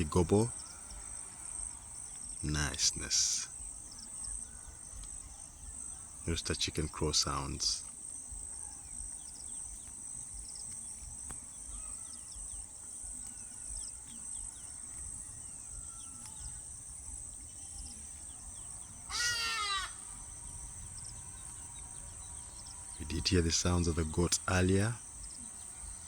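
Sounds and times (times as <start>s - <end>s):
faint bird chirps: 0.0s - 26.0s
high-pitched insect chorus: 0.0s - 26.0s
wavering animal call: 17.8s - 23.1s.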